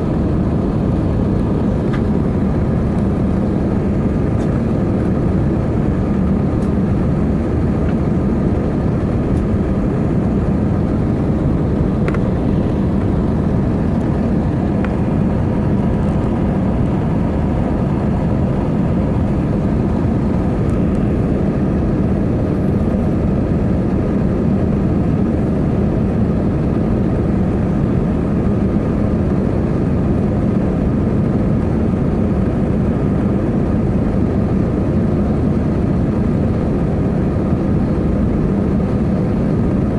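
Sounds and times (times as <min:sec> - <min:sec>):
low hum: 0:00.0 - 0:24.7
jet engine drone in cabin: 0:00.0 - 0:39.9.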